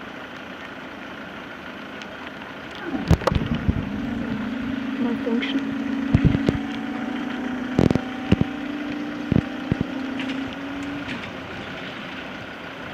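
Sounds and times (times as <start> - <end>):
wind noise: 2.8 - 4.9, 6.1 - 6.7
level crossing alarm pulsing: 3.0 - 11.4.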